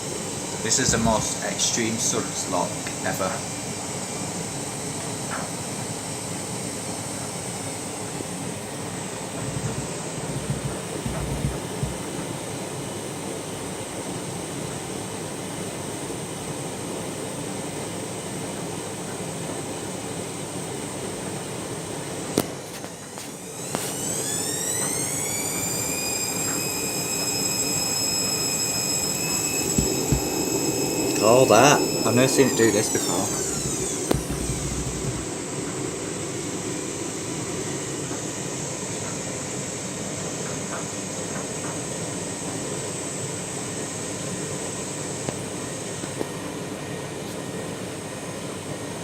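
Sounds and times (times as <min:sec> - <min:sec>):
washing machine whooshing: 0:08.7 - 0:12.6, 0:22.6 - 0:36.6
motor whine rising in pitch: 0:08.8 - 0:12.3, 0:23.2 - 0:38.5.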